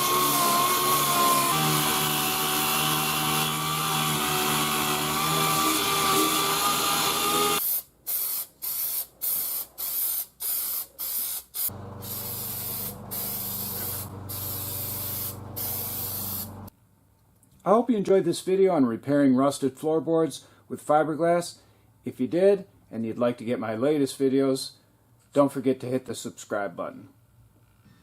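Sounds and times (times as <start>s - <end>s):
power sander whining: 0.0s - 7.6s, 11.7s - 16.7s
aerosol spray can spraying: 7.6s - 16.7s.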